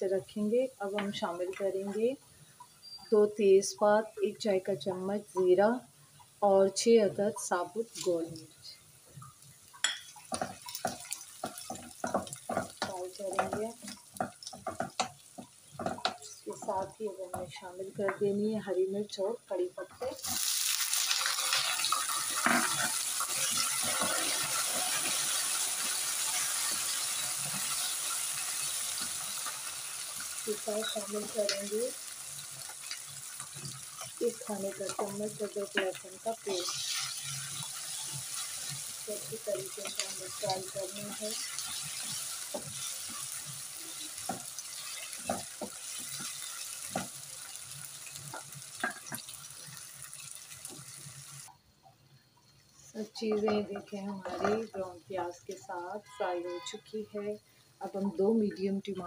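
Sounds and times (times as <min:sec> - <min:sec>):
frying sizzle in hot oil: 0:00.0 - 0:56.2, 0:56.9 - 0:59.0
spatula scraping a pan: 0:21.3 - 0:29.5, 0:32.8 - 0:47.1, 0:53.4 - 0:54.7
wooden spatula scraping and clattering: 0:21.6 - 0:27.9, 0:53.3 - 0:54.8.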